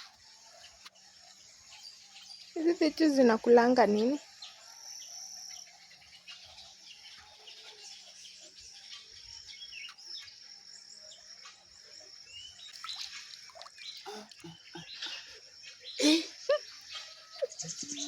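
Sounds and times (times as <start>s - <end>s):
birds chirping and whistling: 12.4s - 18.0s
high-pitched insect drone: 14.0s - 18.0s.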